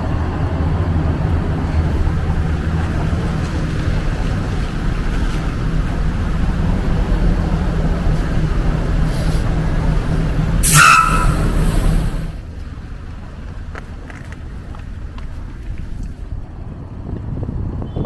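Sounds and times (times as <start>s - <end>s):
large vehicle engine rumbling: 0.0s - 18.0s
loud hissing squeal: 10.6s - 12.4s.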